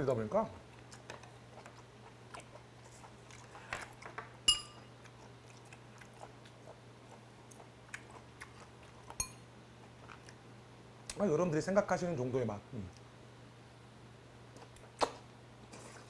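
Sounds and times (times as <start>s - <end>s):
person chewing food: 0.7s - 10.5s
metal utensil clinking on dish: 4.5s - 4.9s.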